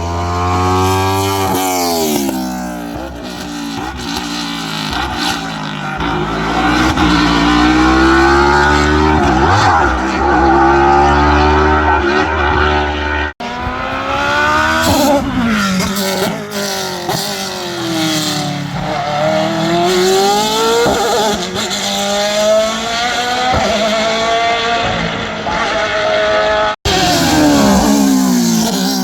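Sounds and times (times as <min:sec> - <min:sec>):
race car engine revving: 0:00.0 - 0:29.0.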